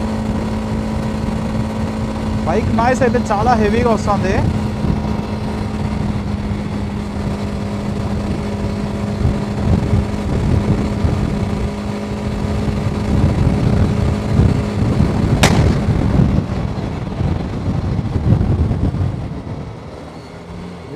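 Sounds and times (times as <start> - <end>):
motorcycle engine cruising: 0.0 - 20.9.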